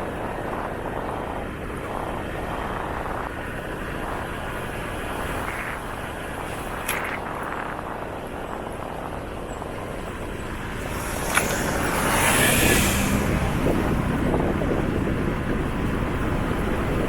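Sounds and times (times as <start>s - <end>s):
motorcycle engine and road noise: 0.0s - 17.0s
rushing noise: 10.4s - 16.1s.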